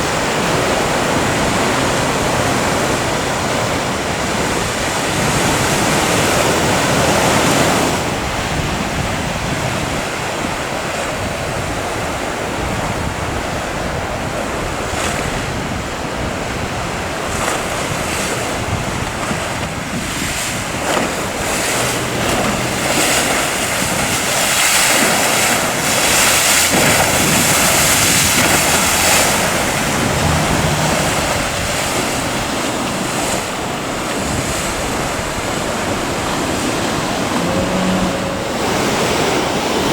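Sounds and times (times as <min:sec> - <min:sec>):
ocean waves breaking: 0:00.0 - 0:39.9
wind buffeting microphone: 0:00.0 - 0:39.9.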